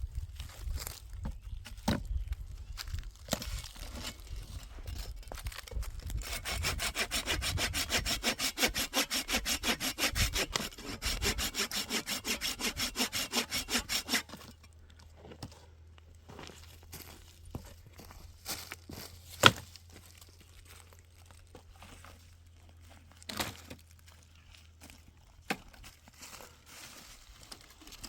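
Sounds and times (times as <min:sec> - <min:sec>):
hand saw cutting wood: 0:06.1 - 0:14.6.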